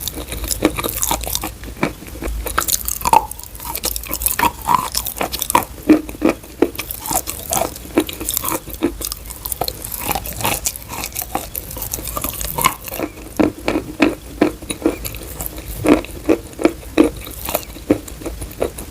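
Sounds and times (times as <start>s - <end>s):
chalk being chewed: 0.0s - 18.9s.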